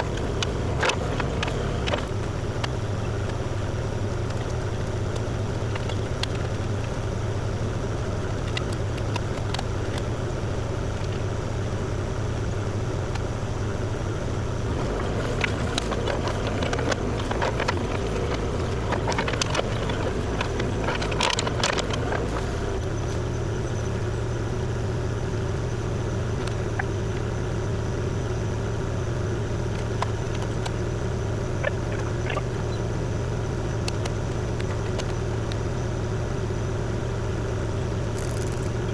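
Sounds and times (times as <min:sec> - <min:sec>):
excavator diesel engine running: 0:00.0 - 0:38.9
sharp knocks and clicks: 0:14.9 - 0:22.8.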